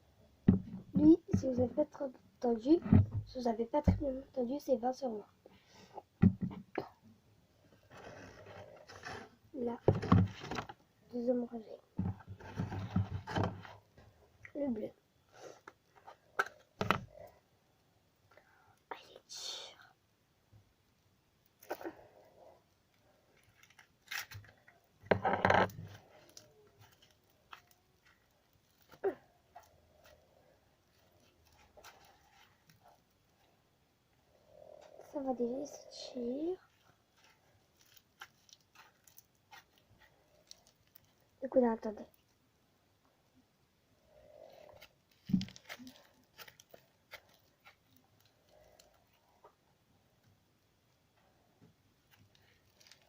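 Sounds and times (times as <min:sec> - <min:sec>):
slime squelching: 0:36.7 - 0:42.2, 0:44.3 - 0:49.2.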